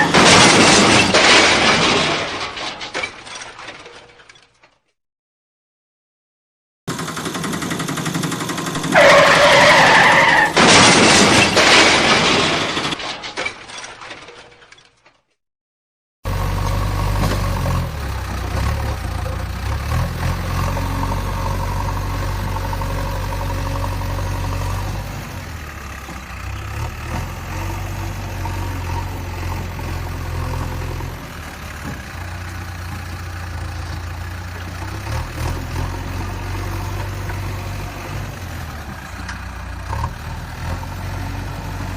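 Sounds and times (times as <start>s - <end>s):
vehicle engine running low: 16.3s - 41.9s.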